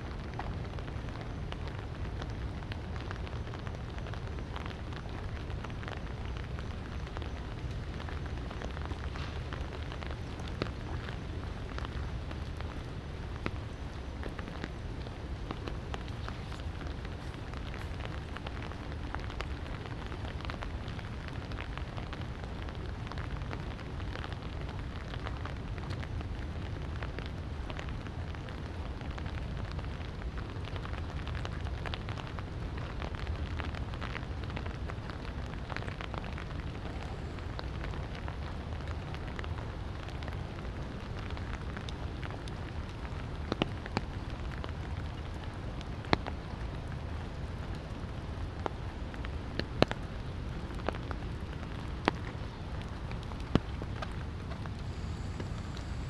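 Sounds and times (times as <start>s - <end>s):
light rain patter: 0.0s - 56.0s
low steady rumble: 51.2s - 56.0s.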